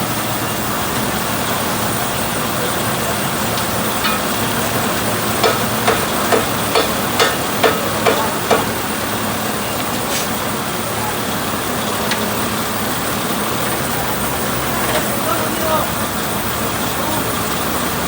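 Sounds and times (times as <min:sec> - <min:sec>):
vehicle engine and road noise: 0:00.0 - 0:18.0.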